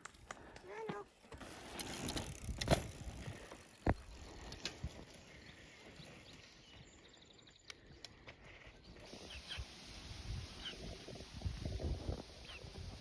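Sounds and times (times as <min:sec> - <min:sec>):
bicycle rattling over rough ground: 0:00.0 - 0:07.1.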